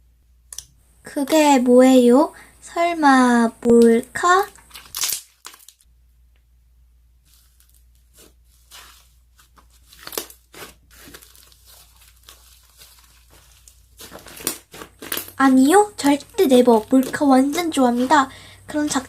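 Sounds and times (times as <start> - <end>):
slime squeezed by hand: 7.3 - 19.0.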